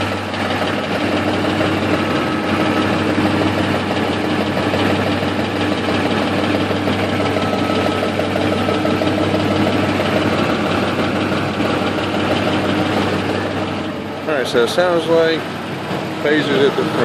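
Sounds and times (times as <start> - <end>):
engine idling with rattle and knock: 0.0 - 17.0.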